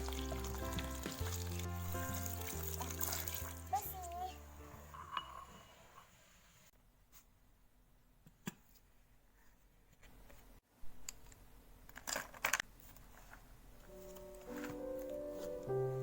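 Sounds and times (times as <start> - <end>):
soft music with steady notes: 0.0 - 5.1, 13.8 - 16.0.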